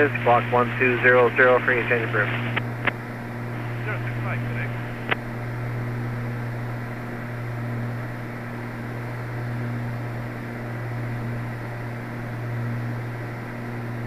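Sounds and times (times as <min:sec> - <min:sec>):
propeller plane engine droning: 0:00.0 - 0:14.0.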